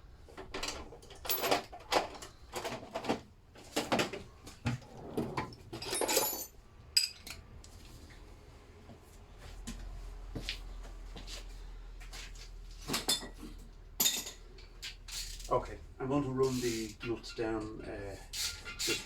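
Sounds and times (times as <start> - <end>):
metal tools clinking in a toolbox: 0.4 - 3.2, 5.5 - 7.4, 12.9 - 14.5.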